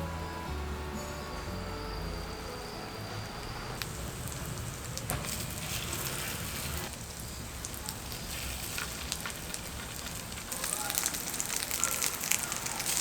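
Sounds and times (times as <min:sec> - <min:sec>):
food frying in oil: 0:03.8 - 0:13.0.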